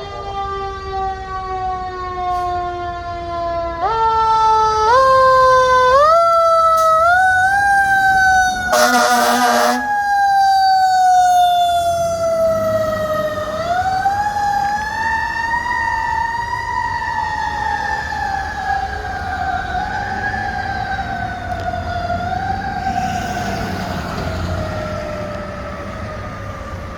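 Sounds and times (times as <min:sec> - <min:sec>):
fire engine siren wailing: 0:00.0 - 0:26.9
horn blast: 0:08.7 - 0:10.0.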